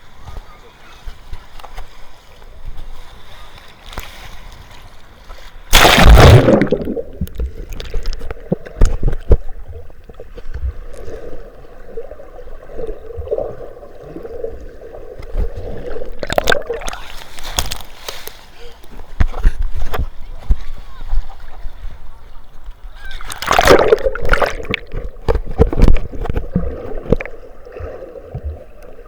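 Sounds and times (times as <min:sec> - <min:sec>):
sea water splashing: 0:05.4 - 0:18.3, 0:23.0 - 0:29.0.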